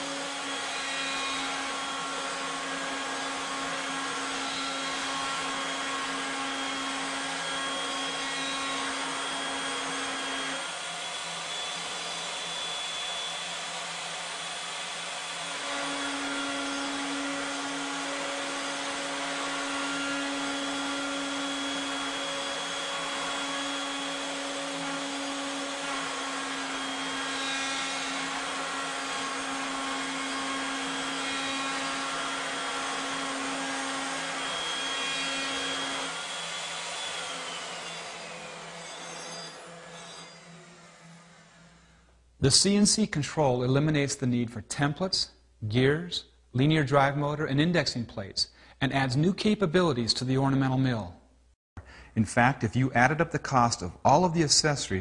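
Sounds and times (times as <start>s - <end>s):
router cutting wood: 0.0s - 42.1s.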